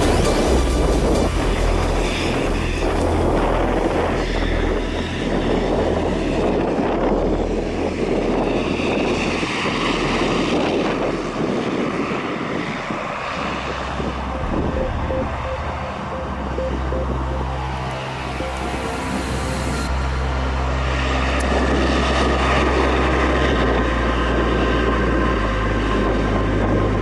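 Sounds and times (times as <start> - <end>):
wind buffeting microphone: 0.0 - 17.7, 18.4 - 27.0
jet engines running: 0.0 - 27.0.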